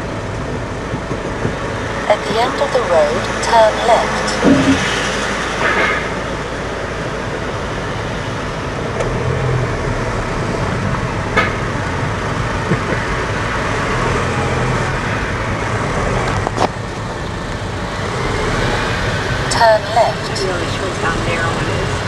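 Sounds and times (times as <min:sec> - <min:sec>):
car engine and tyre hum: 0:04.4 - 0:19.6.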